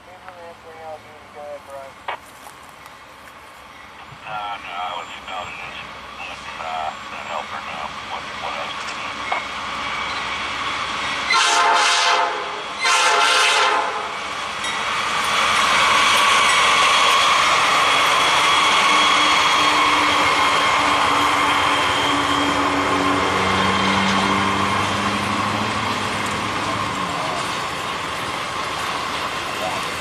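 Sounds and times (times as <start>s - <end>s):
train wheels rumbling on rails: 2.5s - 30.0s
locomotive horn blast: 11.3s - 14.2s.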